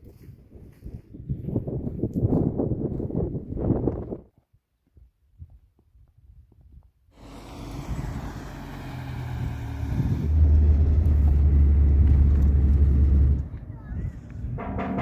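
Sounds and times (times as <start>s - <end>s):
vehicle engine running: 7.2s - 13.7s.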